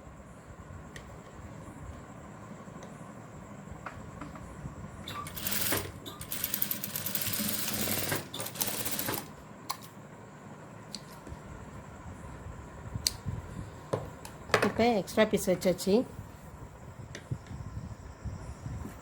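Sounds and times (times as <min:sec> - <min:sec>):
sewing machine stitching: 0:05.1 - 0:09.3.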